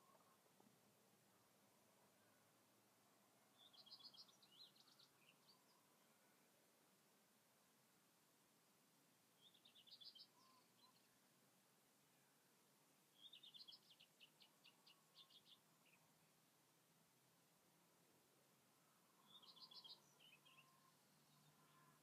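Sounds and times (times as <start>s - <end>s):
songbird singing: 0.0s - 6.7s, 9.2s - 11.4s, 12.0s - 16.5s, 17.8s - 22.0s
low hiss: 0.0s - 22.0s.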